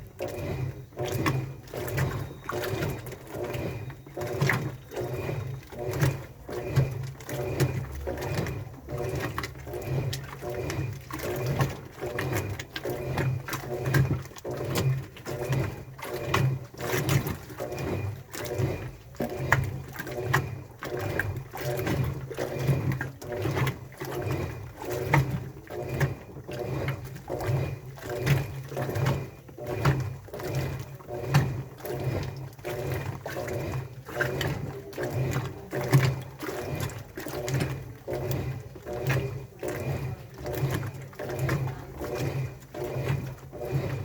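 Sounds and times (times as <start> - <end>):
laundry sloshing and thumping: 0.0 - 44.0
washing machine motor hum: 0.0 - 44.0.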